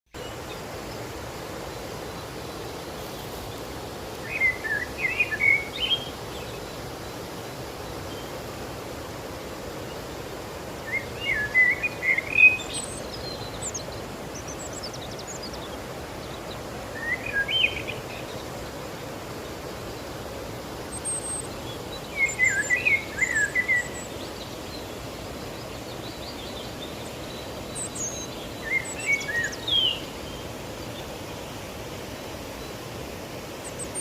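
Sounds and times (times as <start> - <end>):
river water rushing: 0.1 - 34.0
bird singing warbling phrases: 4.2 - 6.7, 10.9 - 18.4, 21.0 - 24.9, 25.6 - 30.5.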